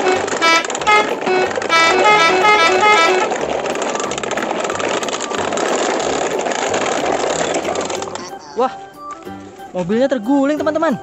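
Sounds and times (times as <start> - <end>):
background music: 0.0 - 11.0
plastic toy trucks rattling on gravel: 0.0 - 11.0.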